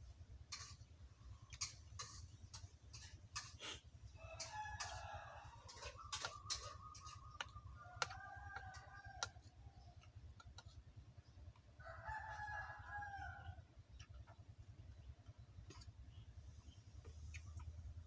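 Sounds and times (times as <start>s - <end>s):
faint rooster crowing: 4.0s - 10.2s, 11.6s - 13.8s.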